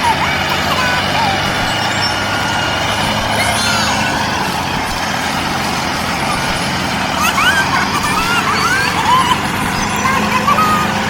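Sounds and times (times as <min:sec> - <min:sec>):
small motor humming: 0:00.0 - 0:11.0
bird-like chirps: 0:01.4 - 0:02.8.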